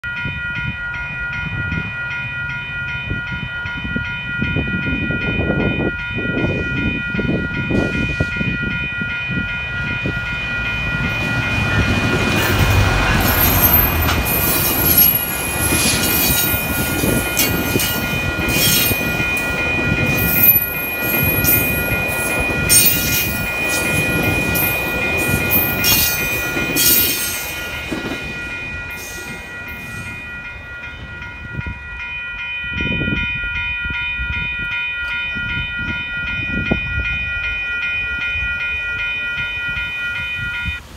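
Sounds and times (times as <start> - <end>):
crossing warning bells ringing: 0.0 - 40.9
diesel locomotive engine rumbling: 0.0 - 40.9
train wheels clacking over rails: 10.2 - 30.1.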